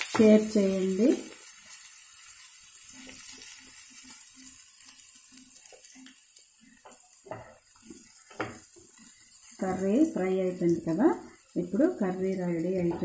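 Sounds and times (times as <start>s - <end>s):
food frying with faint sizzle: 0.0s - 13.0s
spatula knocking against pan: 6.8s - 7.6s, 8.3s - 8.6s.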